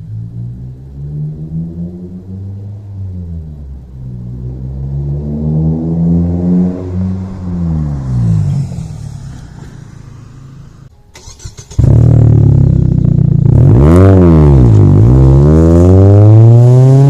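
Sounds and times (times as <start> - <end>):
car engine accelerating: 0.0 - 17.0
loud steady exhaust note: 11.7 - 17.0.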